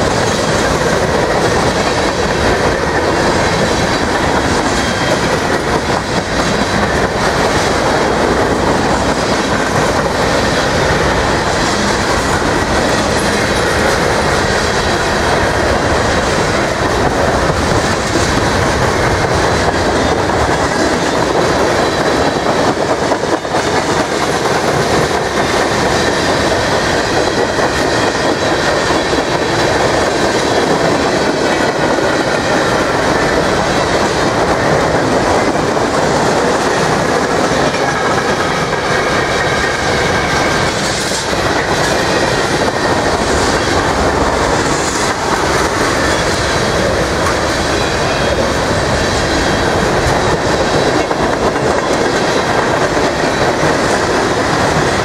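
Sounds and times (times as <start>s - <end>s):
clickety-clack over rail joints: 0.0s - 55.0s
train wheels clattering on rails: 0.0s - 55.0s.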